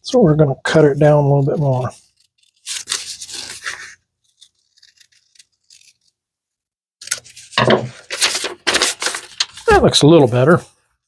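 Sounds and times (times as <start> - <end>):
paper rustling and scraping: 0.8 - 6.2, 7.0 - 10.7.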